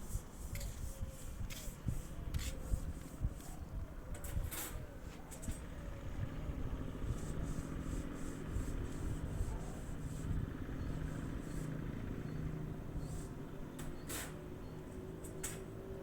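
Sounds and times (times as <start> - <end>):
motor engine humming: 5.6 - 16.0.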